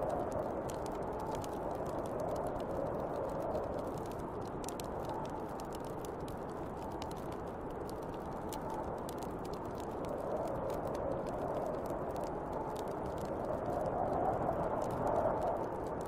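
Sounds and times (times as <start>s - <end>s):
wind whistling: 0.0s - 5.8s, 7.5s - 16.0s
wood fire crackling: 0.0s - 16.0s.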